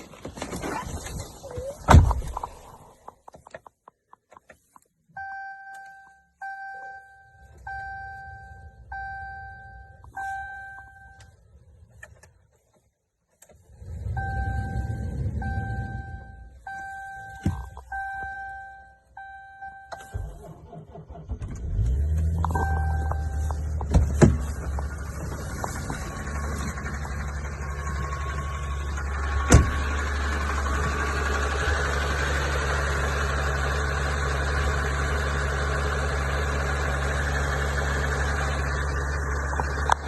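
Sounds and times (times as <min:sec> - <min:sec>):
diesel engine cranking and starting: 0:13.3 - 0:40.0
cabin warning chime dinging: 0:22.4 - 0:23.9.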